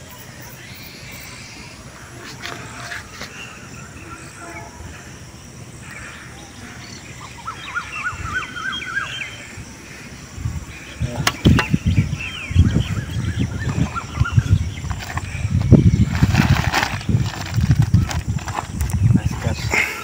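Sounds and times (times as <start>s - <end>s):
bird calling: 0.0s - 20.0s
microphone handling rumbles and knocks: 10.5s - 19.7s.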